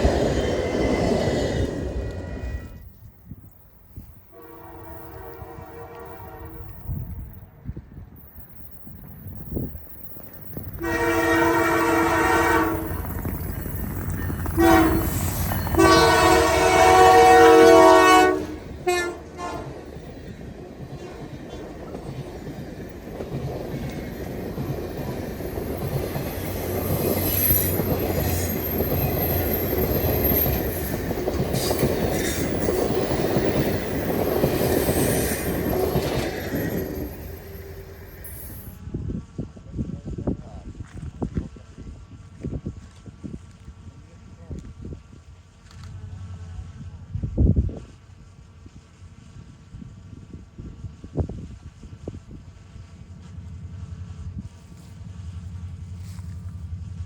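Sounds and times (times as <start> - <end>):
train wheels rumbling on rail: 0.0 - 57.0
locomotive horn blasts: 4.3 - 7.0, 10.8 - 13.0, 14.6 - 15.2, 15.8 - 19.8.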